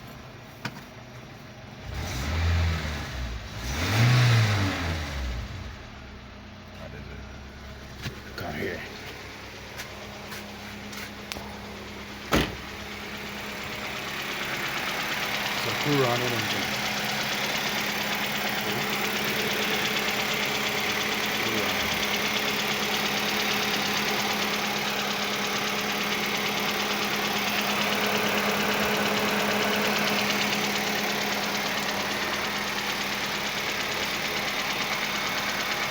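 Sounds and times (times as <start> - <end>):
engine humming steadily: 0.0 - 35.9.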